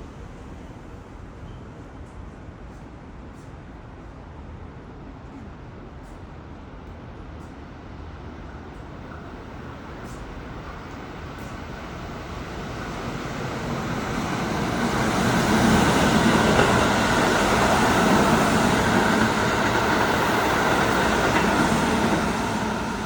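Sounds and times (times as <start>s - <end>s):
electric train passing: 9.1s - 23.0s.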